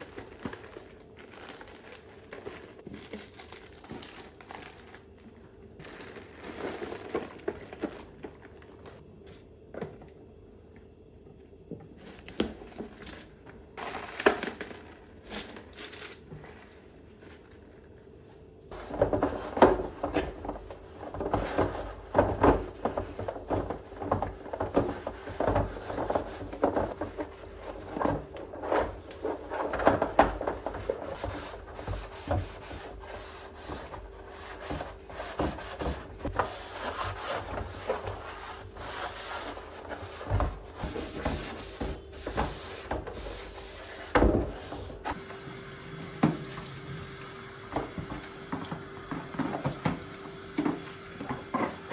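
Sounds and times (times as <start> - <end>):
scrubbing and rubbing strokes: 31.2 - 45.1.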